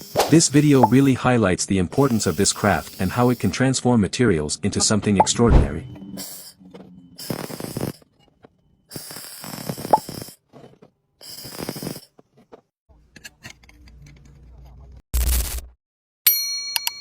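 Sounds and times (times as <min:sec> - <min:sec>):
welding arc crackling: 0:00.0 - 0:01.2, 0:02.0 - 0:03.6, 0:06.2 - 0:06.6, 0:07.2 - 0:08.1, 0:08.9 - 0:10.4, 0:11.2 - 0:12.1.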